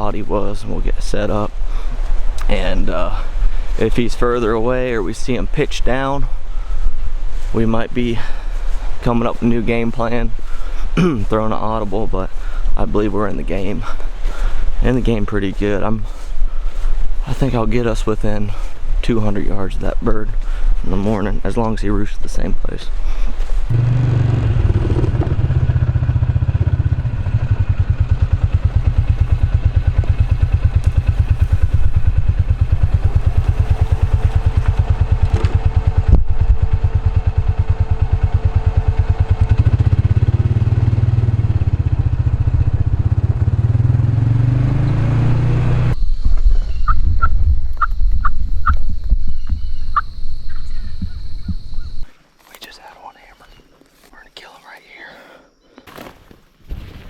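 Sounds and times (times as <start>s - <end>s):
engine running: 23.7s - 46.2s.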